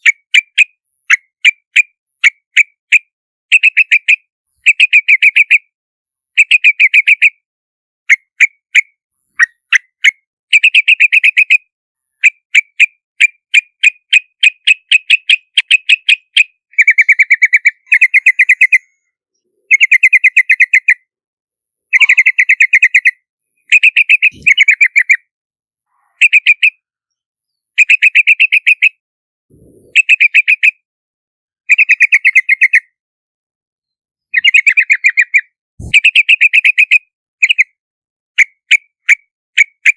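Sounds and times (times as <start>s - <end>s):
bird bubbly chattering: 23.9s - 25.1s, 29.5s - 30.2s, 35.8s - 36.0s.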